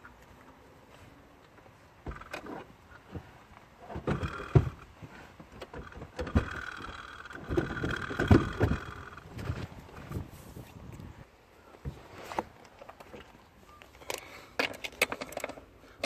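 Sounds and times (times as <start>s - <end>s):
car seat knocks and clunks: 7.4s - 9.7s.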